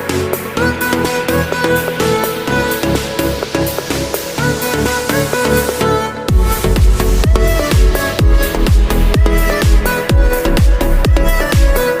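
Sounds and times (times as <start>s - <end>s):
electronic dance music: 0.0s - 12.0s
synth chords: 0.0s - 12.0s
kick drum thuds: 6.3s - 11.8s.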